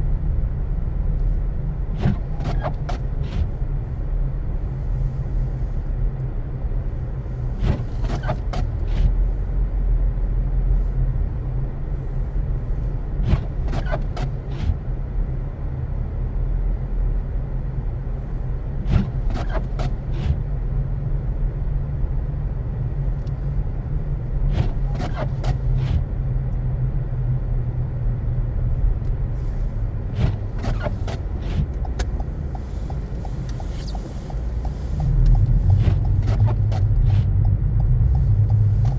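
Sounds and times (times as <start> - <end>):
engine and tyre rumble: 0.0 - 38.9
clicks and squeaks: 2.0 - 3.5, 7.6 - 9.1, 13.2 - 14.8, 18.8 - 20.4, 24.5 - 26.0, 30.2 - 38.9.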